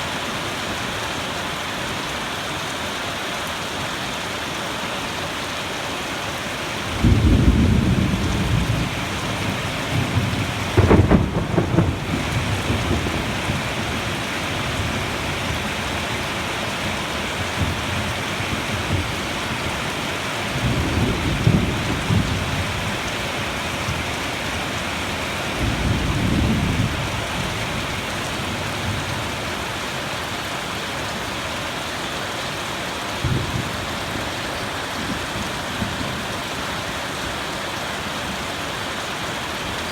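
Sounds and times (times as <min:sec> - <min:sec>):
steady rain falling: 0:00.0 - 0:39.9
thunder rolling: 0:07.0 - 0:14.1.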